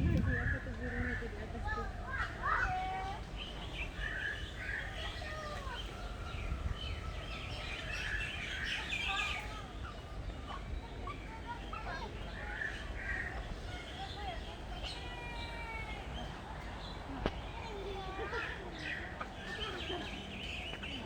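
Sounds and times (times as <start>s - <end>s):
low rumble: 0.0s - 0.8s
birds chirping: 0.0s - 21.0s.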